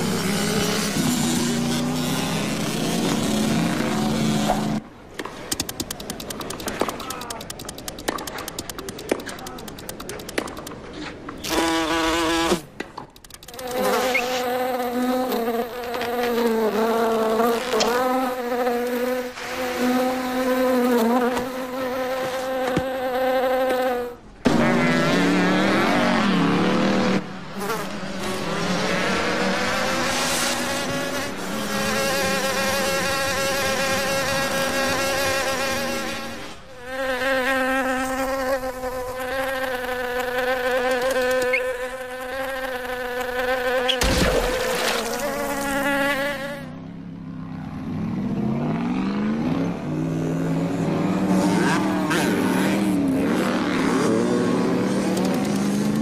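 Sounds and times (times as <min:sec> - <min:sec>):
cartoon insect buzzing: 0:11.4 - 0:12.6, 0:13.2 - 0:25.0, 0:29.8 - 0:46.7.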